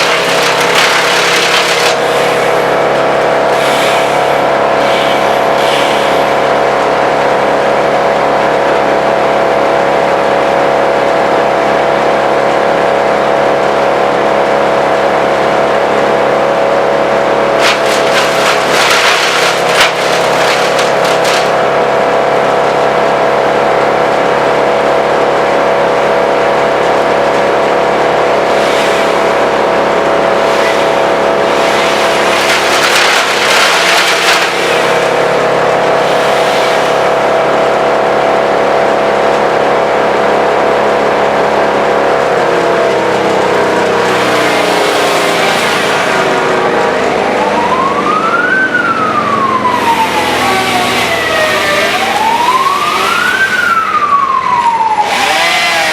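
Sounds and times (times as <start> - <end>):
rushing crackling material: 0.0 - 3.1, 17.6 - 21.9, 30.8 - 35.6
wood chipper running: 0.0 - 55.9
siren wailing: 47.0 - 55.6.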